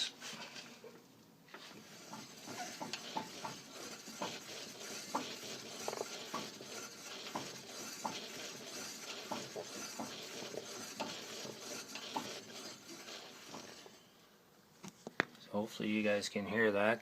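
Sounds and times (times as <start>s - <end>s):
scraping rustle of drivetrain: 1.5s - 14.1s.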